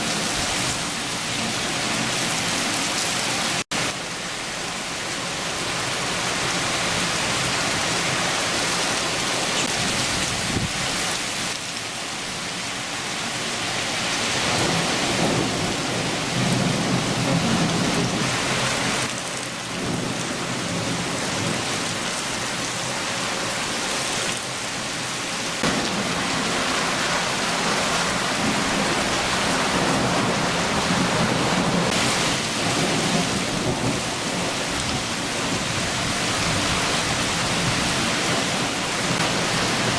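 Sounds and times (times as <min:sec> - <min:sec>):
rain falling: 0:00.0 - 0:39.9
low thunder rumbling: 0:14.5 - 0:19.1, 0:25.6 - 0:39.9.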